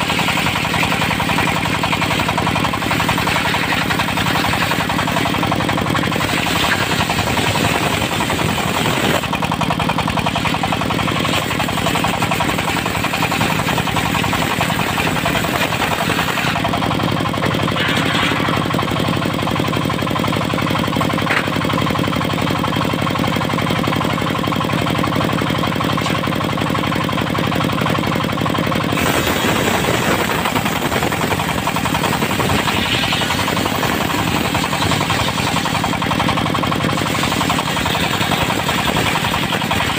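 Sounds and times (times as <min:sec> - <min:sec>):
diesel engine knocking: 0:00.0 - 0:39.9
saw hissing: 0:28.9 - 0:36.1, 0:36.9 - 0:39.9.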